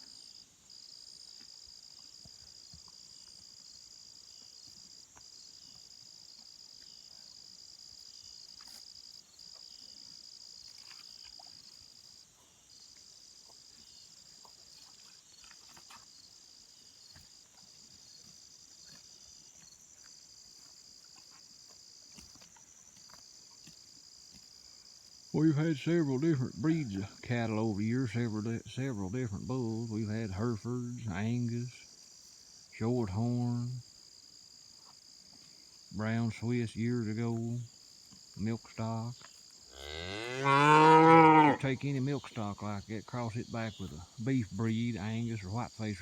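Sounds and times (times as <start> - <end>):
insects trilling: 0.0 - 46.0.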